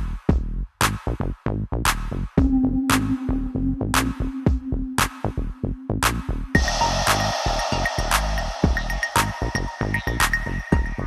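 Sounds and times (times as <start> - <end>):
electronic dance music: 6.0 - 11.0.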